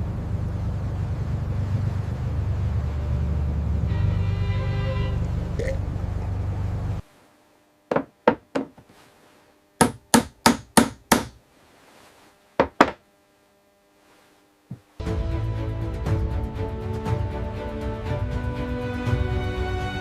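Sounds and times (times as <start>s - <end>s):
sharp hammer-like knocks: 9.8s - 11.4s.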